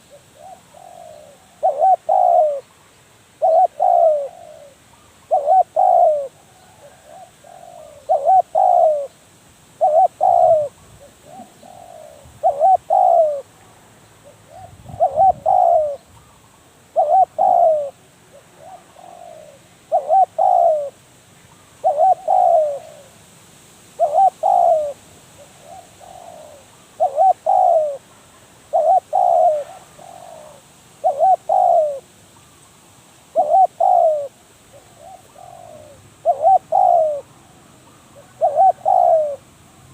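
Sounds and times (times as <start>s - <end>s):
dove cooing: 0.0s - 2.7s, 3.4s - 9.2s, 9.8s - 13.6s, 14.2s - 23.2s, 24.0s - 28.1s, 28.7s - 32.1s, 33.3s - 39.5s.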